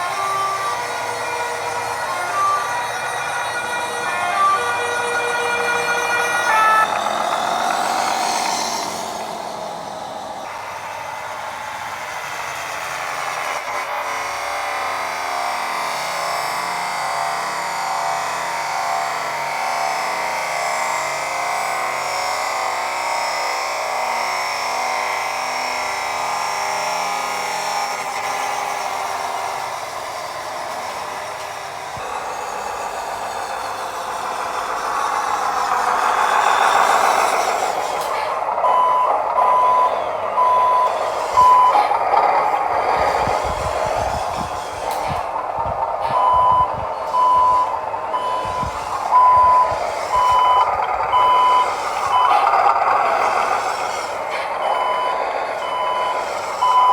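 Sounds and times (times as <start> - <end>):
toy truck running: 0.0 - 56.9
reversing beeps: 2.1 - 9.2, 38.6 - 45.2, 46.0 - 53.6, 54.6 - 56.9.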